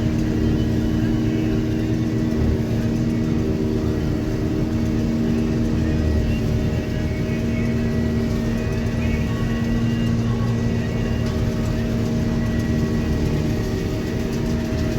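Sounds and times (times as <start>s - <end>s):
combine harvester drone: 0.0s - 14.9s.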